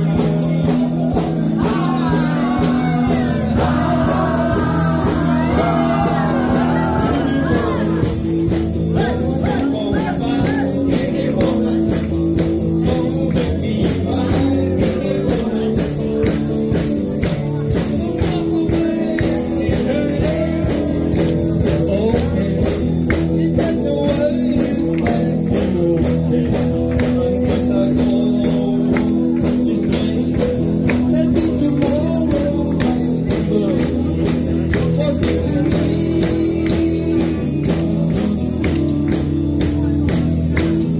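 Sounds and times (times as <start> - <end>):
electric guitar chords: 0.0 - 40.9
person singing: 0.0 - 40.9
tambourine and drum beat: 0.0 - 40.9.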